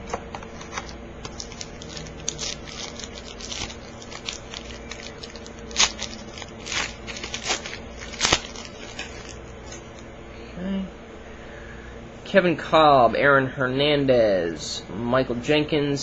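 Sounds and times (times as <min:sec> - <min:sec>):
cards being handled: 0:00.0 - 0:10.0
plastic wrapper crinkling: 0:00.5 - 0:10.0
wrapper ripping: 0:00.6 - 0:10.0.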